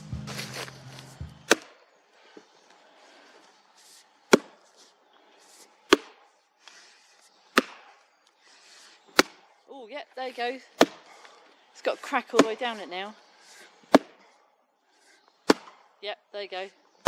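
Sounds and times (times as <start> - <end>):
strikes splitting a log: 1.5 - 1.8, 4.3 - 4.6, 5.9 - 6.2, 7.5 - 7.9, 9.1 - 9.4, 10.8 - 11.1, 13.9 - 14.2, 15.4 - 15.8.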